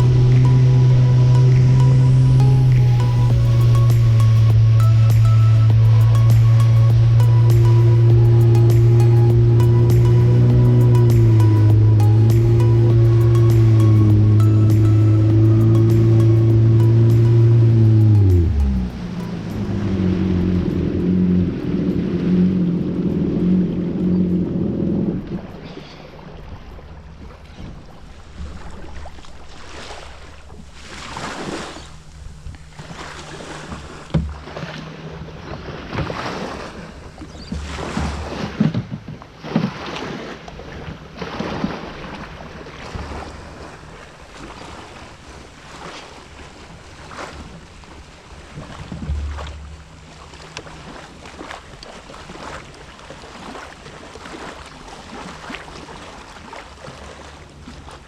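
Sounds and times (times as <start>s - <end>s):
wind buffeting microphone: 0.0s - 14.8s, 17.7s - 39.4s
jet ski idling: 0.0s - 39.5s, 40.4s - 58.0s
water slapping against hull: 0.0s - 58.0s
sharp knocks: 48.9s - 49.9s.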